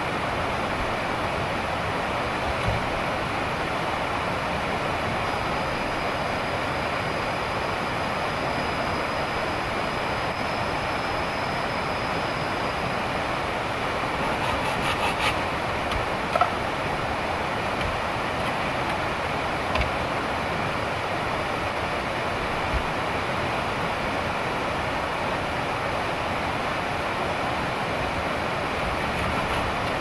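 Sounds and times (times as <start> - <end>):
small knocks and clicks: 14.4 - 16.7, 17.7 - 20.1.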